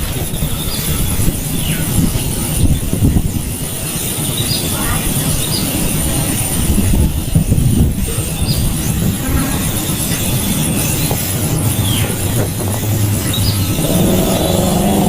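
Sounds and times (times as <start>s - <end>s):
low rumbling noise: 12.6s - 15.0s.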